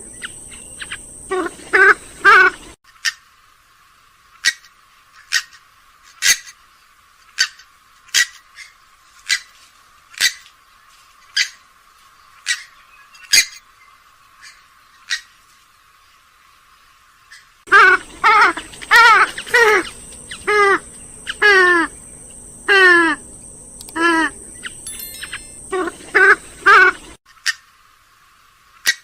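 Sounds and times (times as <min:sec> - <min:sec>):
swamphen calling: 0:00.0 - 0:03.2, 0:17.3 - 0:27.2.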